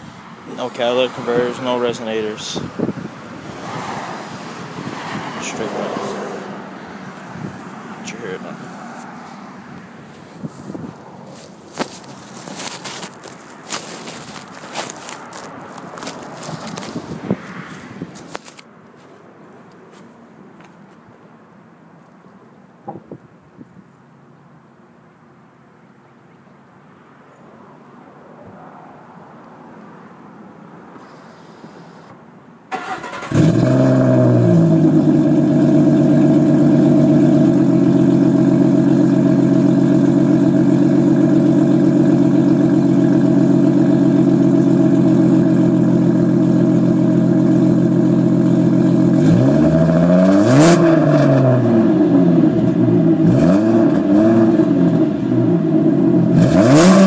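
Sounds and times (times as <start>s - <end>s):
car engine revving: 32.7s - 57.0s
car engine starting: 32.7s - 57.0s
car engine idling deeply: 33.3s - 49.2s.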